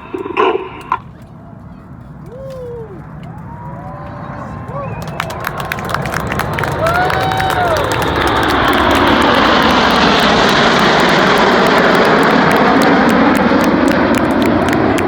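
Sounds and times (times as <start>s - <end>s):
airplane flying past: 0.0s - 15.0s.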